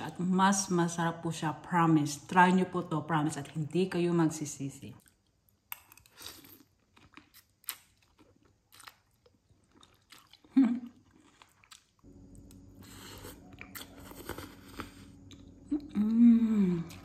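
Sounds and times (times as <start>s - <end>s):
person chewing soup: 5.0s - 17.0s
steady low hum: 11.3s - 17.0s.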